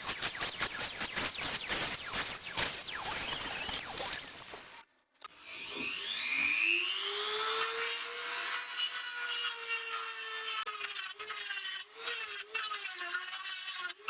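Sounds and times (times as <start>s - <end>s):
power tool grinding metal: 5.4s - 14.0s.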